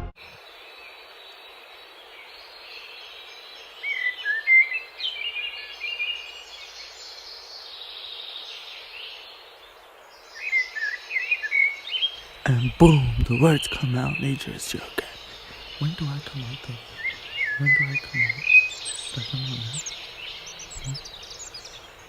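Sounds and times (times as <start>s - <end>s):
steady background hiss: 0.2s - 22.0s
birds chirping and whistling: 10.4s - 22.0s.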